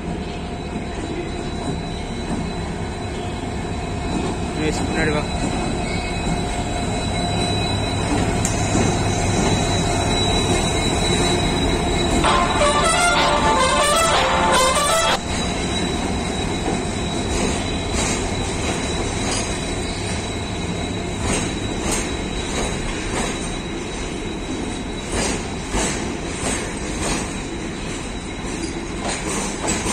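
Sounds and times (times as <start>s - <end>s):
freight train rumbling past: 0.0s - 29.9s
high wheel squeal: 0.2s - 29.9s
background music: 12.2s - 15.3s.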